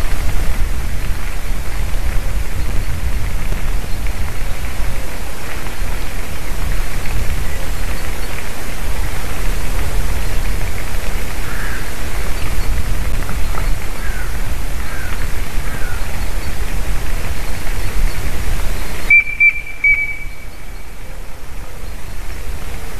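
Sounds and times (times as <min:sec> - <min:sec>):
wind rushing on microphone: 0:00.0 - 0:22.9
faint whistled bird notes: 0:17.8 - 0:22.2
clear whistle: 0:19.1 - 0:20.5.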